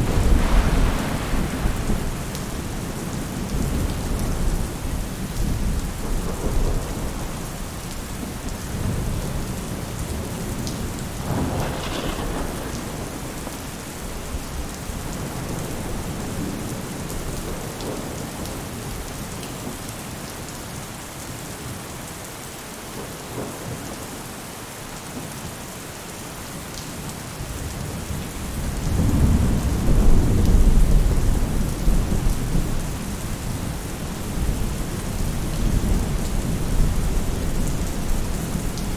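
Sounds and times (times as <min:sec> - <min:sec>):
thunder rumbling: 0:00.0 - 0:07.6, 0:08.7 - 0:18.5
rain falling on a roof: 0:00.0 - 0:38.9.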